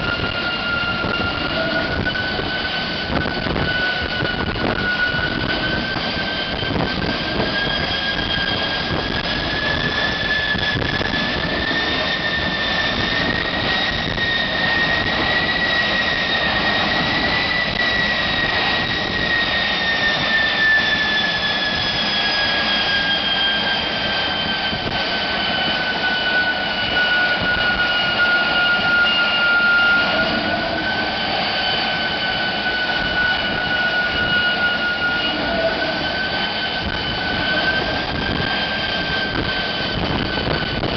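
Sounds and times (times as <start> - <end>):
turbojet engine rush and whine: 0.0 - 40.9.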